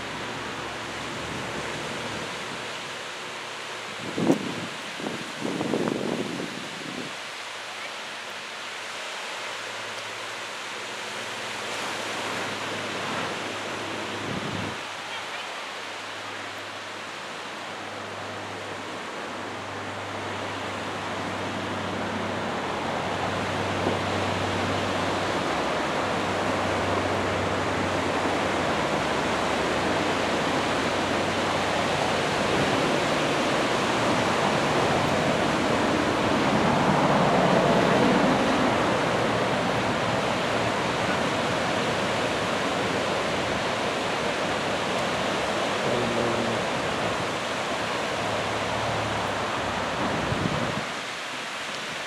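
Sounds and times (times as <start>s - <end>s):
surf breaking on beach: 20.7s - 52.0s.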